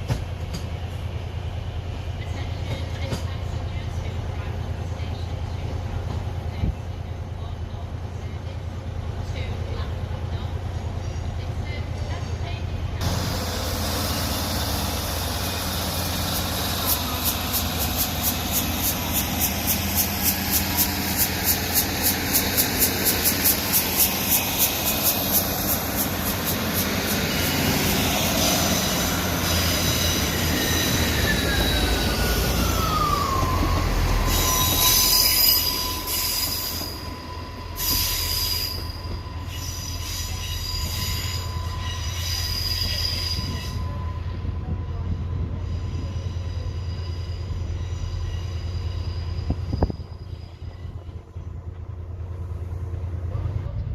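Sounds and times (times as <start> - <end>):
train rumbling slowly: 0.0 - 53.9.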